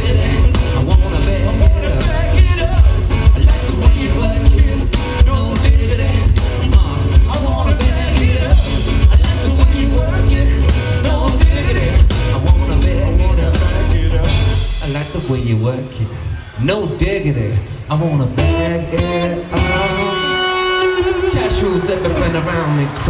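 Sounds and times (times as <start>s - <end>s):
heavy bass line: 0.0s - 15.3s
steady drum beat: 0.0s - 15.3s
live band playing loud: 0.0s - 23.0s.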